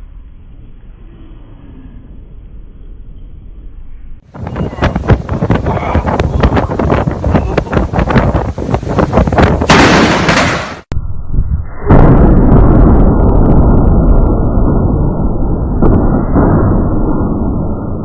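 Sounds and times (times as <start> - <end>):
wind on microphone: 4.2 - 14.8
thunder crack: 4.3 - 11.0, 11.8 - 18.0
low rolling thunder rumble: 4.3 - 18.0.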